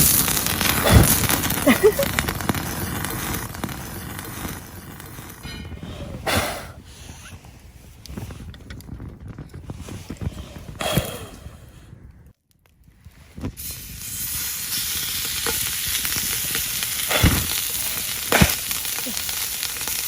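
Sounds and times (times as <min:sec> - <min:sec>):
meat sizzling in frying pan: 0:00.0 - 0:04.6, 0:13.6 - 0:20.0.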